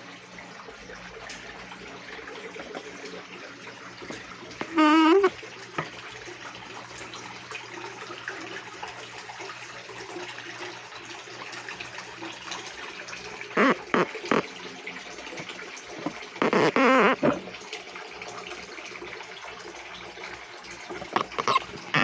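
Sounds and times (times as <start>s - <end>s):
washing machine water running: 0.0s - 22.0s
sputtering gurgles: 4.0s - 5.9s, 13.5s - 17.6s, 20.8s - 22.0s.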